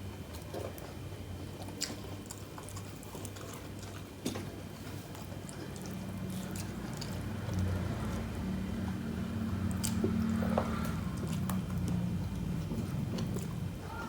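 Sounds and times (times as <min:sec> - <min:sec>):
low steady hum: 0:00.0 - 0:14.0
wet chewing: 0:00.0 - 0:14.0.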